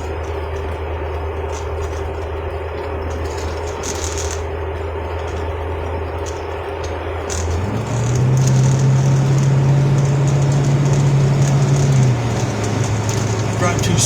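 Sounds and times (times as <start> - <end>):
road noise: 0.0 - 14.0
vehicle engine humming: 0.0 - 14.0.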